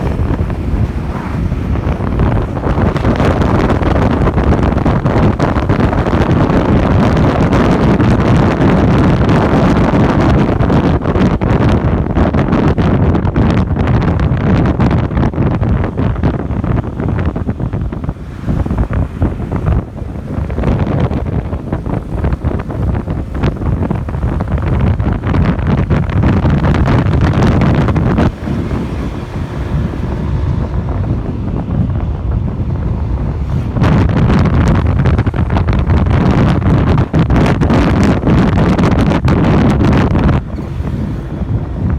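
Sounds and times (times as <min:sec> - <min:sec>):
motorcycle engine: 0:00.0 - 0:41.9
road noise: 0:00.0 - 0:41.9
wind buffeting microphone: 0:00.0 - 0:41.9.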